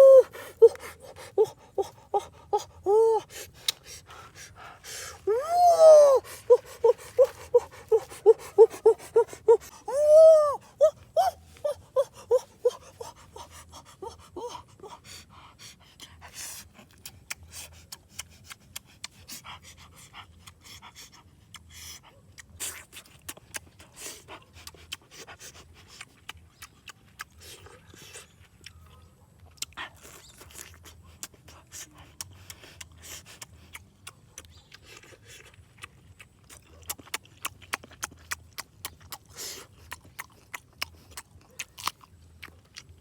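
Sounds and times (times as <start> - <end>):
pitched panting or whimpering: 0.0 - 22.2.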